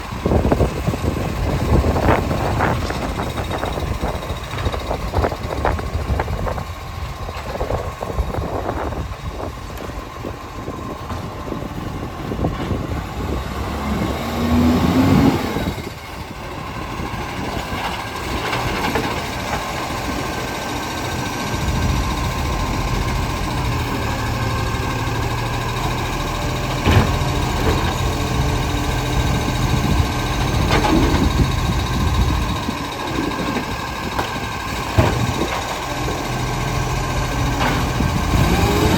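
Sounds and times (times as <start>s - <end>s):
garbage truck engine running: 0.0s - 38.9s
wind buffeting microphone: 0.0s - 38.9s.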